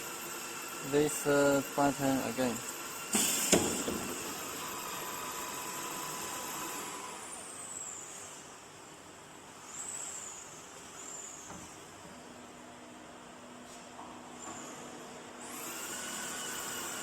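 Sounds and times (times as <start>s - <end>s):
motor whines gliding down: 0.0s - 8.2s, 14.4s - 17.0s.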